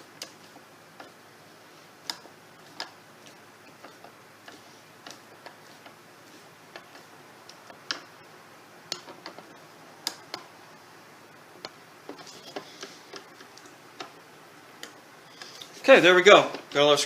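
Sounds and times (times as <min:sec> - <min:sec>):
hand tools and screws clicking: 0:06.7 - 0:08.2, 0:08.9 - 0:10.5.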